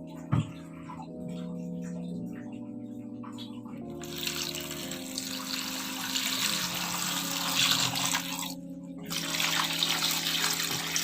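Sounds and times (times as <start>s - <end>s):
tap water running into sink: 4.0s - 11.0s.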